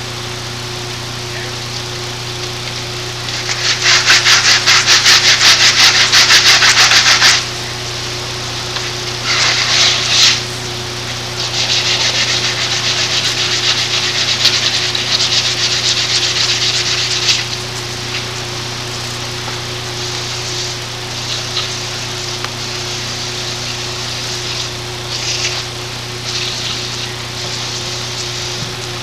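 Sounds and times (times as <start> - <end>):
hand sanding strokes: 3.3 - 7.6, 8.8 - 10.6, 11.3 - 19.4, 20.0 - 29.0.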